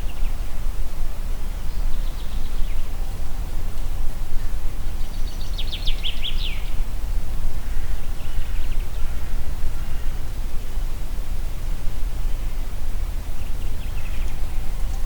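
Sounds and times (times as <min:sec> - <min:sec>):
wind blowing through a forest: 0:00.0 - 0:15.0
songbird singing: 0:05.0 - 0:06.8.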